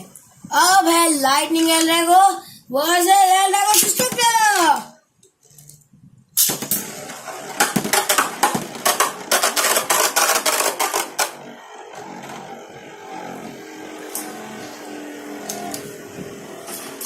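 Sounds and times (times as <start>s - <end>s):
spinning tops whirring: 3.3s - 4.9s, 6.4s - 17.0s.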